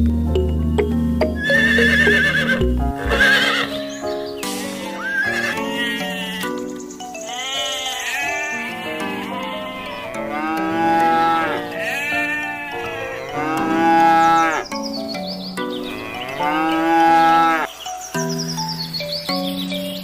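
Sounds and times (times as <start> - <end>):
background music: 0.0 - 20.0
cow mooing: 1.4 - 3.7, 4.8 - 6.6, 7.2 - 14.7, 15.9 - 17.7.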